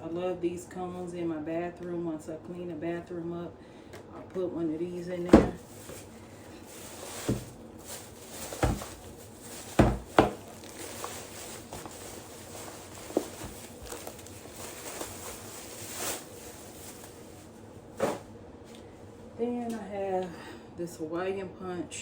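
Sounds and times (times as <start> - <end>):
items knocking on hard surface: 5.2 - 6.1, 6.9 - 15.2
grocery rustle: 5.5 - 18.3.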